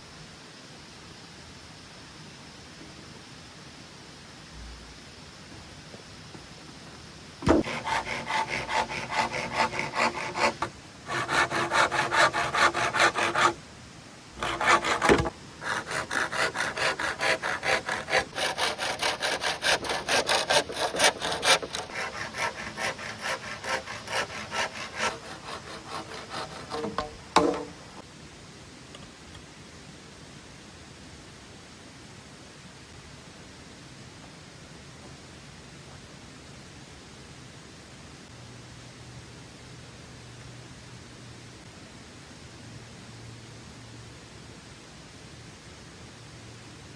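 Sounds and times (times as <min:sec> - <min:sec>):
sharp knocks: 0:07.4 - 0:07.9, 0:14.4 - 0:16.1, 0:26.4 - 0:28.0
hand saw cutting bamboo: 0:07.4 - 0:13.6, 0:14.4 - 0:28.0.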